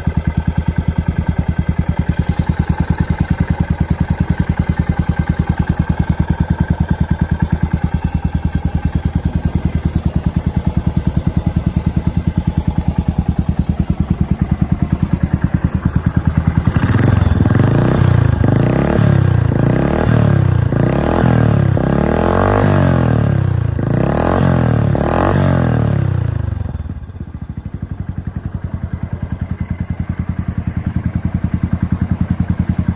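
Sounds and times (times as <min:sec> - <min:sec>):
motorcycle engine idling and revving: 0:00.0 - 0:32.9.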